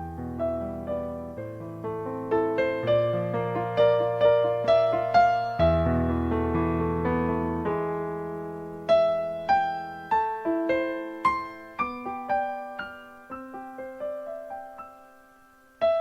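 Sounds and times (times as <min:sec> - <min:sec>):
slow solo piano: 0:00.0 - 0:16.0.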